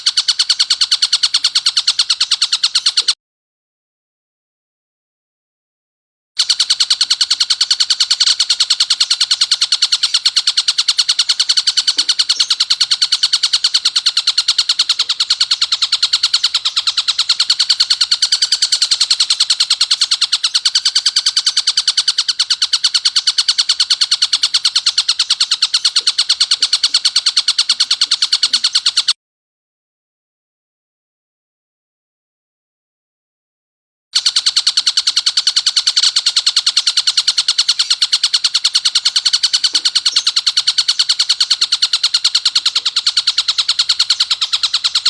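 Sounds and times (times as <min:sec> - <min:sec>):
kingfisher rasping chatter: 0:08.1 - 0:29.1, 0:36.0 - 0:45.0.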